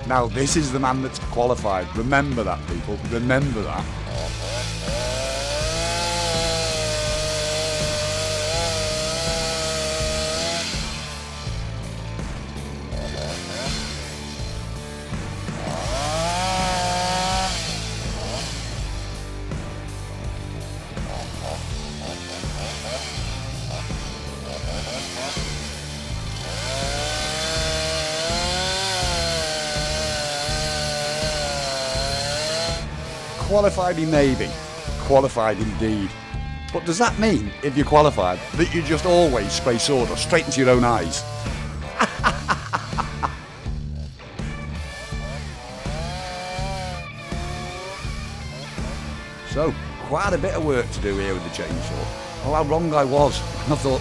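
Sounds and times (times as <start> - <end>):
background music with beat: 0.0 - 54.0
chainsaw cutting wood: 0.0 - 54.0.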